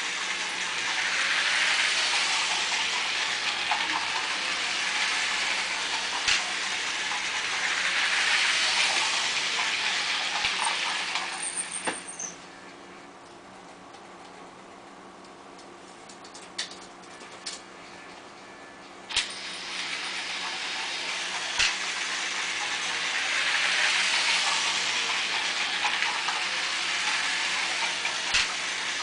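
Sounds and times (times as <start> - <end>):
toy train motor on plastic track: 0.0 - 12.4, 19.1 - 29.0.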